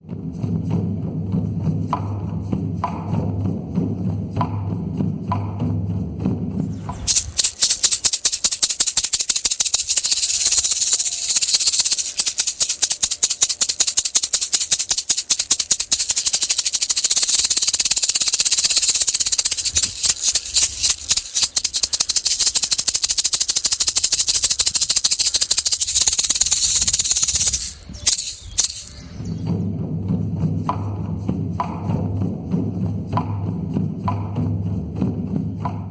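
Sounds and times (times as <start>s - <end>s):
rattle shaken fast: 6.6s - 29.5s.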